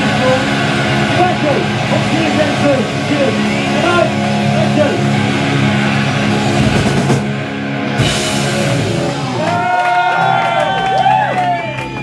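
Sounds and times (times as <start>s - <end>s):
cymbal crash: 0.0s - 9.4s
distorted electric guitar: 0.0s - 12.0s
live rock band playing: 0.0s - 12.0s.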